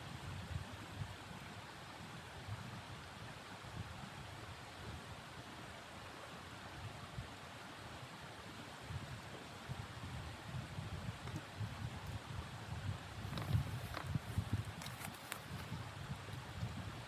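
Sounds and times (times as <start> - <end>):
wind buffeting microphone: 8.8 - 17.0.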